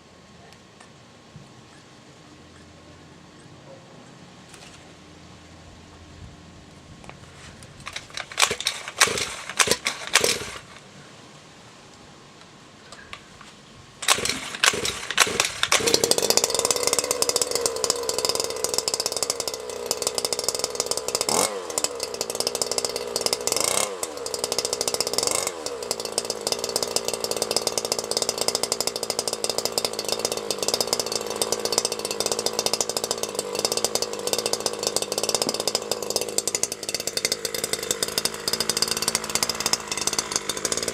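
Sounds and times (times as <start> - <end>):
two-stroke engine starting and revving: 7.7 - 10.9, 14.0 - 40.9.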